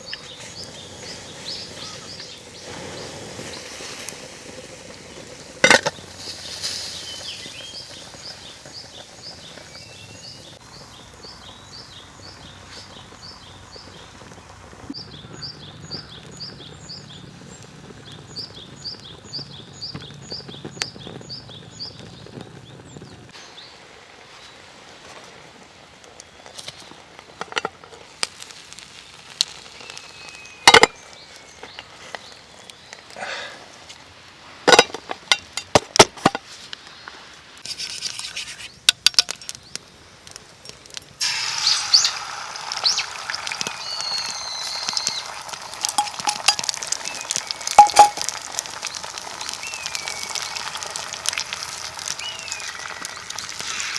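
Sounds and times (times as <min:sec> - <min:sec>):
bird chirping: 0:00.0 - 0:03.7, 0:41.3 - 0:51.0, 0:52.0 - 0:53.9
food sizzling in a pan: 0:00.0 - 0:15.0, 0:41.2 - 0:53.9
metal utensils clinking: 0:34.7 - 0:36.4, 0:45.8 - 0:46.8, 0:47.7 - 0:48.3.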